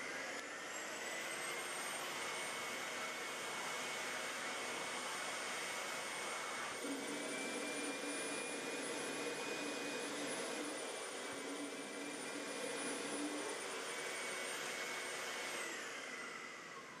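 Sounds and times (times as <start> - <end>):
vacuum suction with high whine: 6.8 - 17.0.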